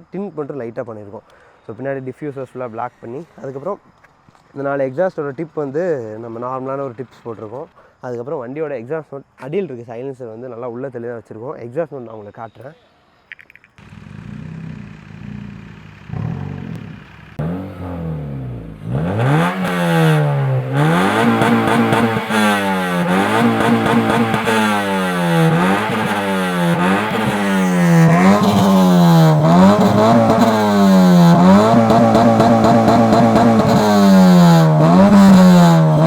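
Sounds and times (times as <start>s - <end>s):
car engine revving: 13.8s - 36.0s.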